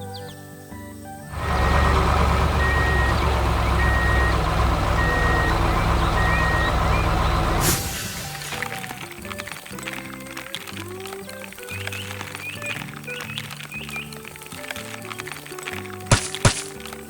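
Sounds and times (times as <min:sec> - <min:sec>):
reversing alarm beeping: 0:01.3 - 0:08.9
heavy diesel engine running: 0:01.3 - 0:09.0.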